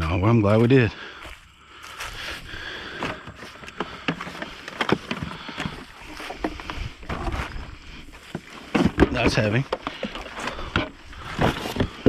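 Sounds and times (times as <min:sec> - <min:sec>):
scrap items knocking and clattering: 0:02.9 - 0:12.0.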